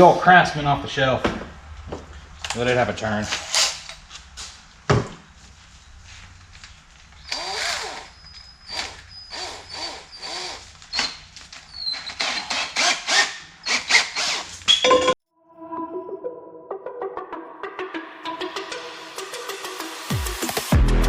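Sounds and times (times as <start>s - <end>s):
electric drill in bursts: 7.2s - 14.7s
drill bit squealing: 7.2s - 14.9s.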